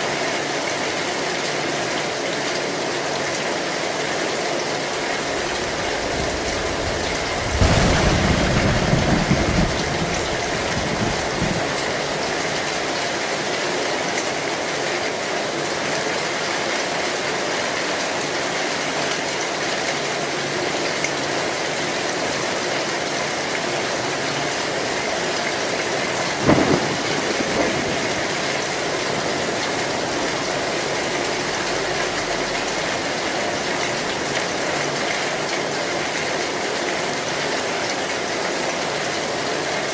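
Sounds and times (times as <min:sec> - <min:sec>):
heavy rain on a tin roof: 0:00.0 - 0:39.9
thunder rumble: 0:05.0 - 0:13.0, 0:25.5 - 0:34.6
sharp thunderclap: 0:05.2 - 0:13.0, 0:25.8 - 0:33.4.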